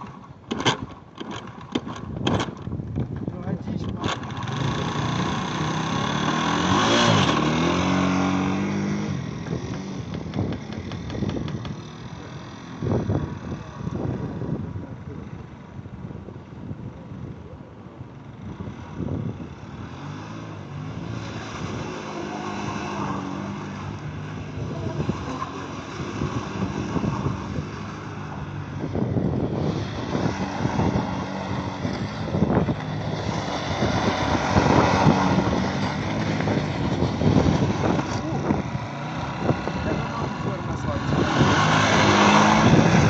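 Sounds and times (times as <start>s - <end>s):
knocks and rattles: 0.0s - 4.7s, 9.4s - 12.0s
vehicle engine revving hard: 4.0s - 11.4s, 18.7s - 43.0s.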